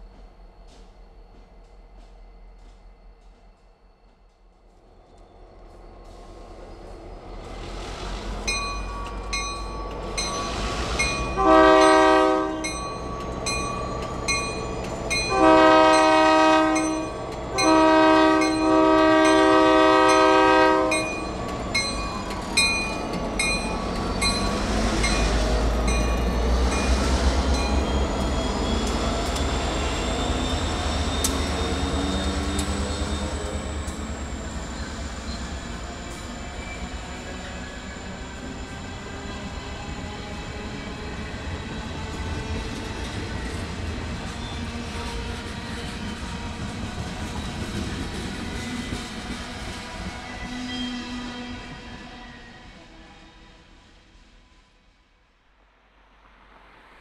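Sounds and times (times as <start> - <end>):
train air horn blasts: 11.2 - 12.8, 15.3 - 21.2
wheel squeal: 27.5 - 38.9.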